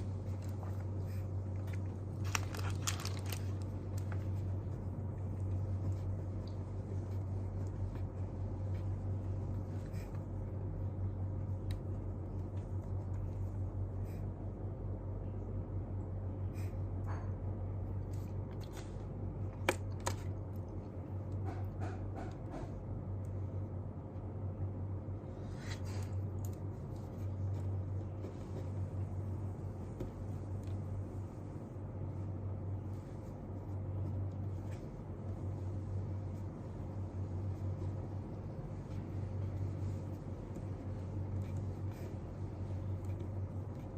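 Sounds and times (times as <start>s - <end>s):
low hum: 0.0s - 43.9s
paper and pen handling: 0.2s - 10.3s.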